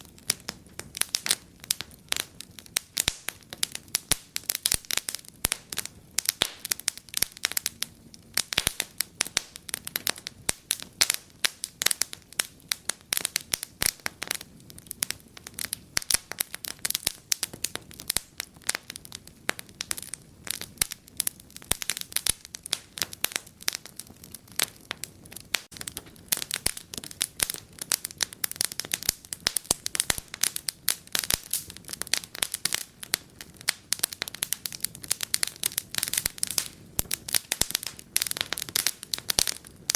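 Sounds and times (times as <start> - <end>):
low hiss of burning: 0.0 - 39.9
wood fire crackling: 0.0 - 39.9.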